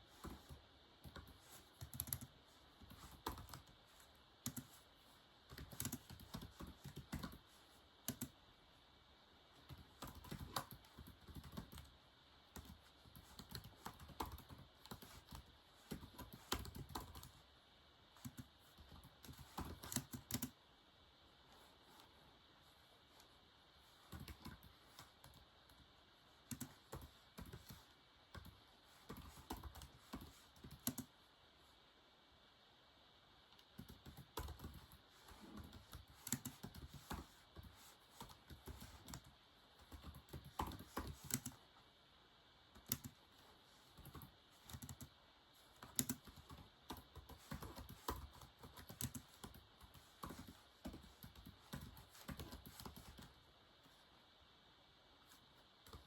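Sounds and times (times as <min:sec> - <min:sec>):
typing on a keyboard: 0:00.1 - 0:04.8, 0:05.5 - 0:08.4, 0:09.6 - 0:17.4, 0:18.2 - 0:20.6, 0:24.0 - 0:25.8, 0:26.4 - 0:31.1, 0:33.6 - 0:41.6, 0:42.8 - 0:43.2, 0:43.9 - 0:45.1, 0:45.7 - 0:53.3.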